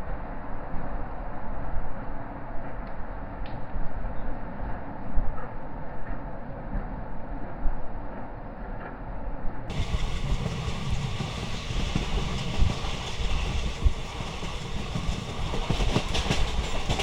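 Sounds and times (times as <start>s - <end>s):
train wheels rumbling on rails: 9.7s - 17.0s.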